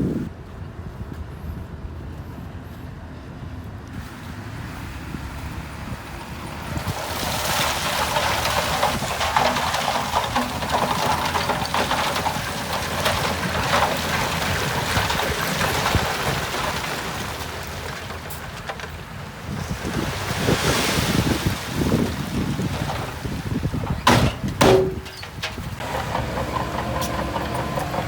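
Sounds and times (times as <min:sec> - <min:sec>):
diesel engine rumble: 0:00.0 - 0:20.5, 0:21.2 - 0:28.0
soil and rock crackling: 0:05.6 - 0:28.0.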